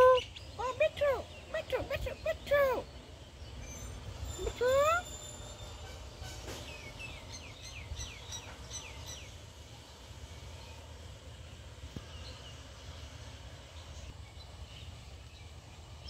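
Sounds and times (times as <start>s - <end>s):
bird chirping: 0.0s - 11.0s
steady low rumble: 0.0s - 16.0s.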